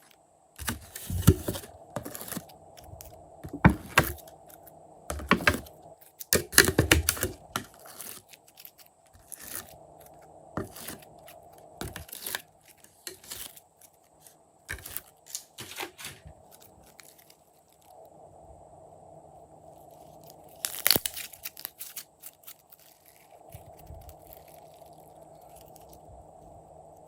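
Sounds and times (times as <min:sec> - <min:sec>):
hands working crackly slime: 0:00.0 - 0:17.9, 0:20.0 - 0:26.1.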